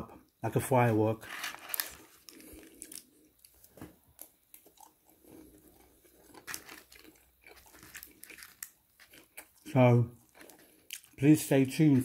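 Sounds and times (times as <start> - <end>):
quiet chewing: 1.8 - 11.2.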